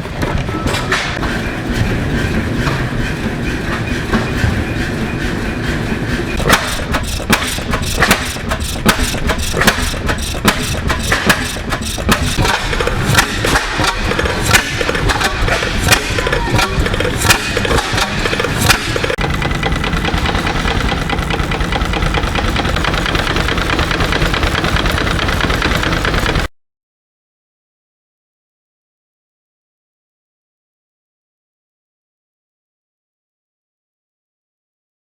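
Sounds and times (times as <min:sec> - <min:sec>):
engine exhaust pops and knocks: 0:00.0 - 0:26.5
gas engines running: 0:00.0 - 0:26.5.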